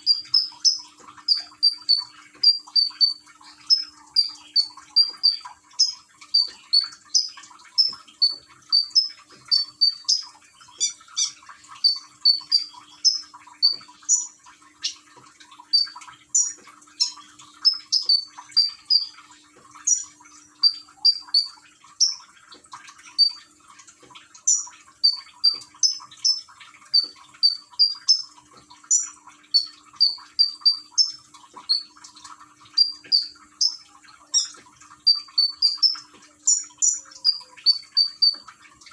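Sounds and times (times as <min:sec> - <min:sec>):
songbird chirping high notes: 0:00.0 - 0:15.0, 0:15.8 - 0:19.2
trickle of running water: 0:00.0 - 0:38.9.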